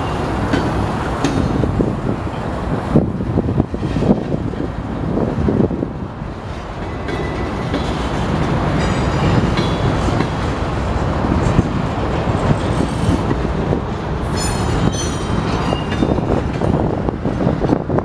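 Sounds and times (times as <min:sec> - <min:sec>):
freight train wheels rumbling: 0:00.0 - 0:18.0
high-pitched wheel squeals: 0:14.3 - 0:16.2.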